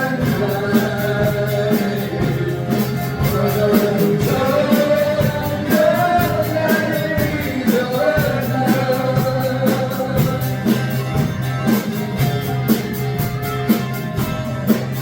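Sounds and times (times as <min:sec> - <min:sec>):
lead singer singing: 0:00.0 - 0:11.2
rock band playing: 0:00.0 - 0:15.0.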